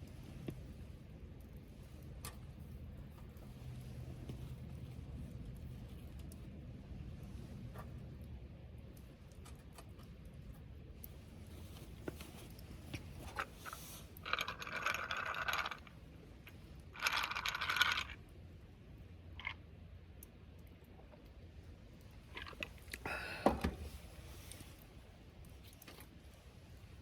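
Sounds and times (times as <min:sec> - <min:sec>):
metallic clinking and scraping: 0:13.2 - 0:15.9.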